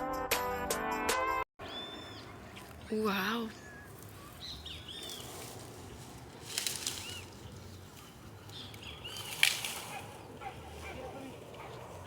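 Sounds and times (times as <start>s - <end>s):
birds chirping: 1.6s - 12.0s
clicks and rustles: 5.0s - 10.1s
sharp crack: 8.7s - 10.2s.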